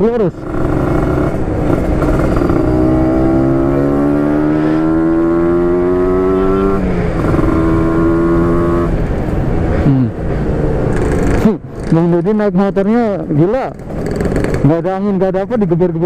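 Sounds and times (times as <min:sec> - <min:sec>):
two-stroke motorcycle accelerating: 0:00.0 - 0:09.2, 0:10.9 - 0:12.2, 0:13.5 - 0:15.0.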